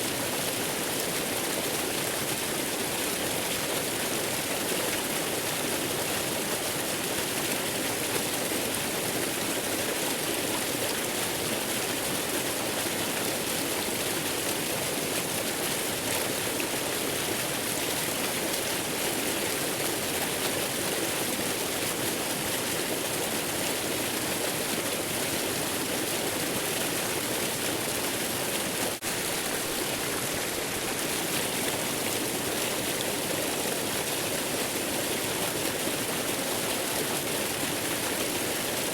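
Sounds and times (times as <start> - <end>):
waterfall rushing water: 27.6 - 38.9.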